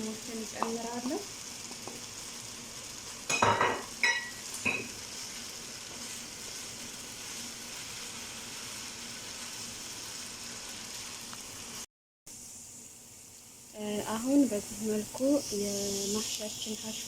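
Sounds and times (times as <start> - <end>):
filling sizzling in a pan: 0.0 - 17.0
spoon clinking against pan: 3.3 - 4.9.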